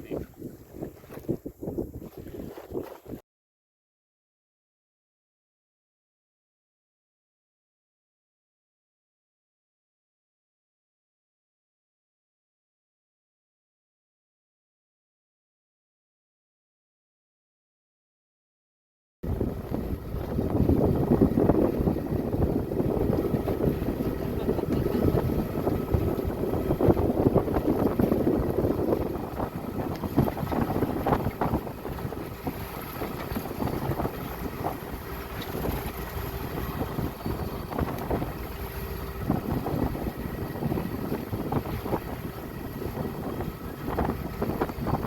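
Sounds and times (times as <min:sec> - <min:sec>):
water rushing past boat: 0:00.0 - 0:03.2, 0:19.2 - 0:45.0
wind buffeting microphone: 0:00.0 - 0:03.2, 0:19.2 - 0:45.0
faint motor hum: 0:19.3 - 0:45.0.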